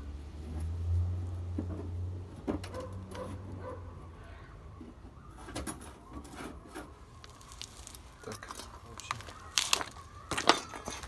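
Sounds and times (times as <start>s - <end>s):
metal parts knocking and scraping: 9.6s - 11.0s.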